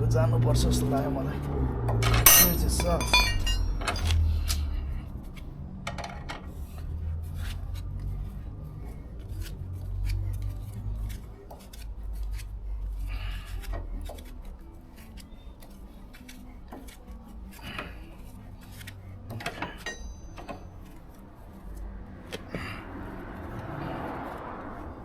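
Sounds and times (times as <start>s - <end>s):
metallic clink of tools: 2.0s - 4.3s.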